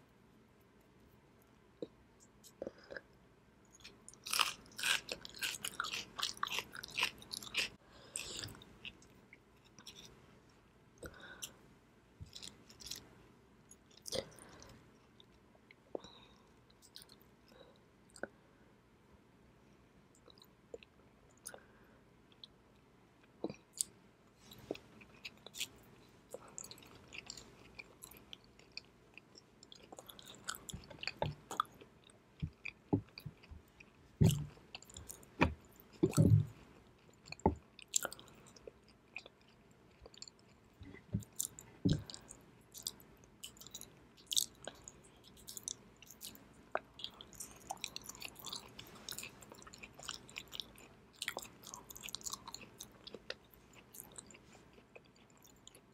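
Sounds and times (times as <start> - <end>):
chewing with wet mouth clicks: 23.2 - 55.9.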